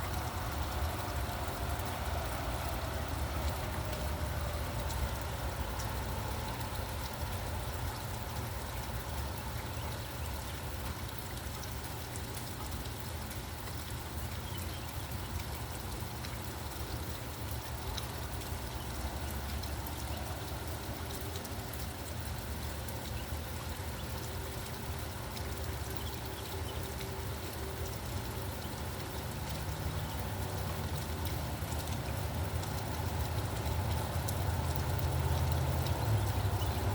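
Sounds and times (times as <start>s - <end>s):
rain falling: 0.0s - 36.9s
low steady rumble: 17.4s - 36.9s.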